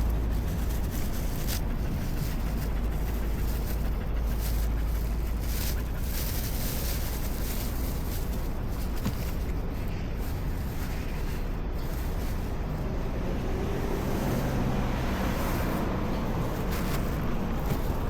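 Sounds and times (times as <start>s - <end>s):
low traffic rumble: 0.0s - 18.0s
vehicle engine humming: 0.0s - 18.0s.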